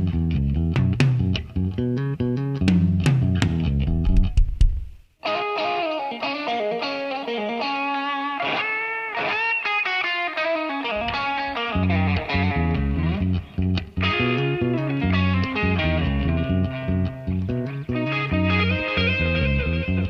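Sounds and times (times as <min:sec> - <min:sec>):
electric guitar melody: 0:00.0 - 0:04.5, 0:05.2 - 0:20.0
bass guitar: 0:00.0 - 0:05.1, 0:10.8 - 0:20.0.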